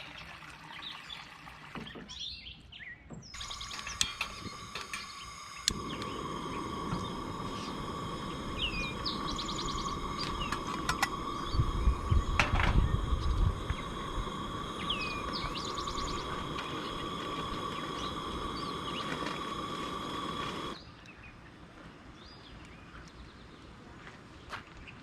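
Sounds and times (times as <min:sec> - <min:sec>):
small birds chirping: 0:00.7 - 0:23.8
steady high hum: 0:03.4 - 0:20.8
low rumble: 0:05.3 - 0:20.5.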